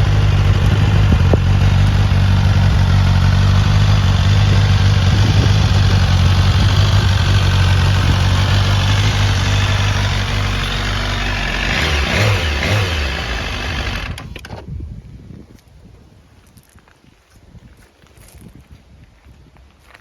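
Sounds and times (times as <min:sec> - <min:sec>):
motorcycle engine idling: 0:00.0 - 0:14.4.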